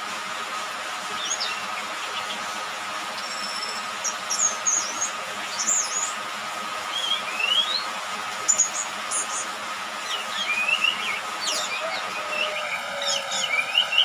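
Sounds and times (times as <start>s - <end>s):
thrush chirping and whistling: 10.0s - 14.0s.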